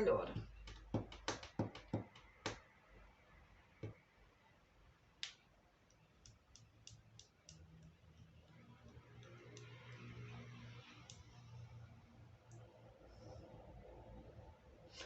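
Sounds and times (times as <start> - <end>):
faint clicks and taps: 0.3 - 2.6, 5.2 - 11.4.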